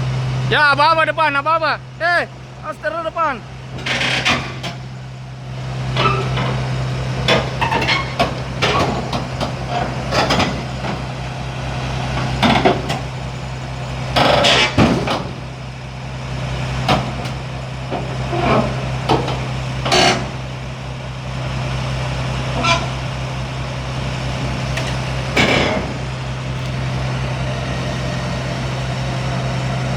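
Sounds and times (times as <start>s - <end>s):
diesel engine running: 0.0s - 29.9s
machine knocks and clanks: 3.8s - 5.0s, 6.0s - 11.3s, 12.2s - 13.3s, 14.0s - 15.6s, 16.8s - 20.5s, 24.4s - 26.8s.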